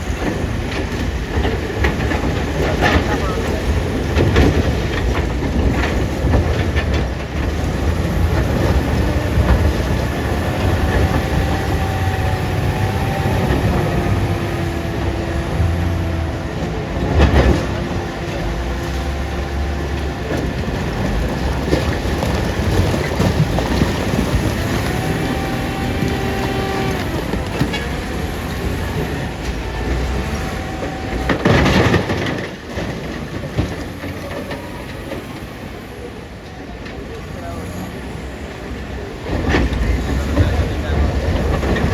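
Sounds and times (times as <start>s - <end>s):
wheel loader diesel engine: 0.0s - 41.9s
hydraulic whines: 6.0s - 32.8s.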